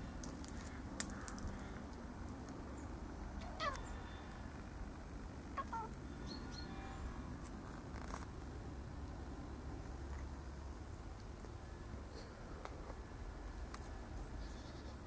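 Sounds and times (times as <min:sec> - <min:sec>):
cat meowing: 0:03.4 - 0:03.9.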